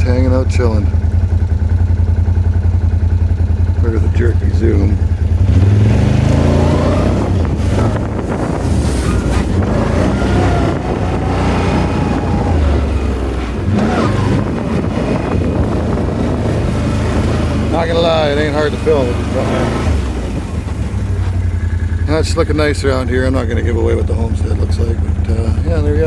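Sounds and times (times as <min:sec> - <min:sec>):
off-road vehicle engine revving: 0:00.0 - 0:26.0
wind noise on microphone: 0:05.6 - 0:18.7.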